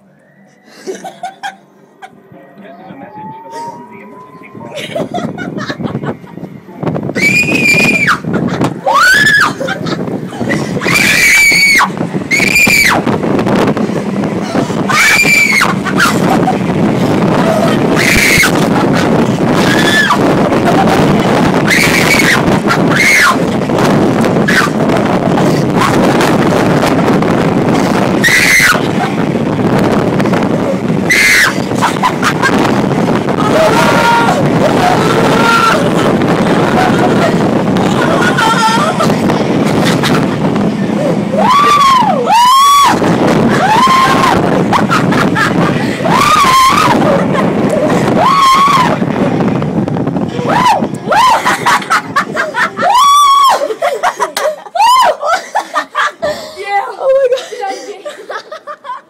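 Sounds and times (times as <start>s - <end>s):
wind noise on microphone: 0.0s - 57.5s
fans blowing hard: 0.0s - 59.0s
girls screaming: 7.1s - 9.8s, 10.8s - 13.1s, 14.9s - 16.4s, 21.5s - 23.5s, 28.1s - 29.1s, 31.0s - 39.4s, 41.3s - 49.1s, 50.4s - 53.8s, 54.7s - 56.4s.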